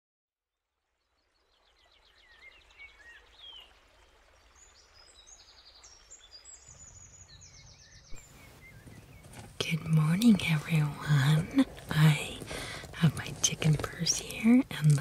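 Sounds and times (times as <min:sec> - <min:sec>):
songbirds singing: 0:01.0 - 0:15.0
low background noise: 0:08.0 - 0:15.0.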